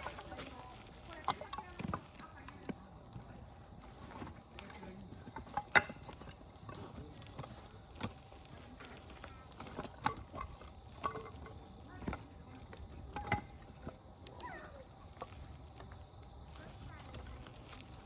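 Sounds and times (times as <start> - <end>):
sharp pops of burning firewood: 0.0 - 2.8
campfire crackling: 0.0 - 18.0.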